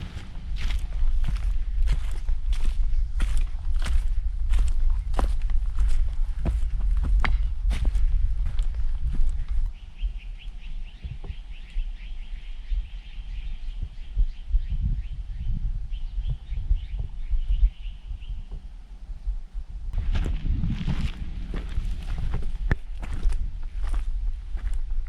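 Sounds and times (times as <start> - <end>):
low thuds: 0.0 - 9.7, 18.5 - 24.8
bird chirping: 9.7 - 18.6.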